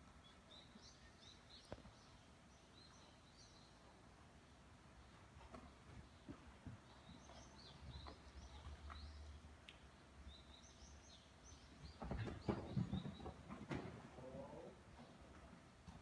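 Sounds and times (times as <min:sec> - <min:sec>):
birds chirping: 0:05.0 - 0:15.3
dull thuds and knocks: 0:12.0 - 0:14.1.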